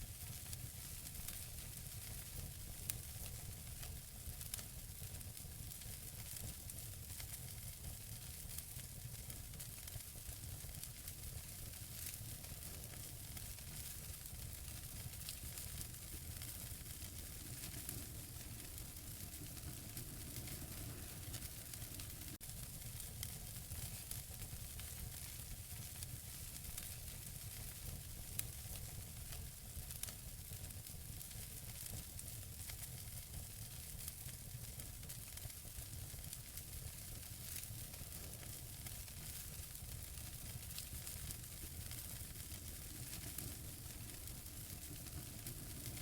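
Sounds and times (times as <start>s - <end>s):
fire crackles and pops: 0.0s - 46.0s
burning logs hissing: 11.6s - 25.2s, 36.6s - 46.0s.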